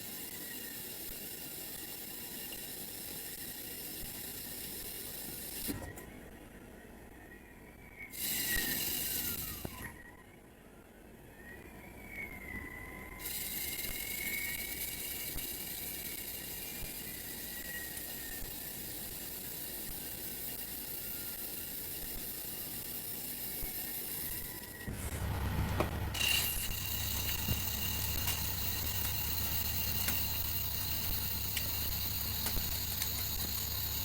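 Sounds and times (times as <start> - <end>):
faint wavering whine: 0.0 - 34.0
low hum with high tone: 5.8 - 34.0
cnc machine running: 24.6 - 34.0.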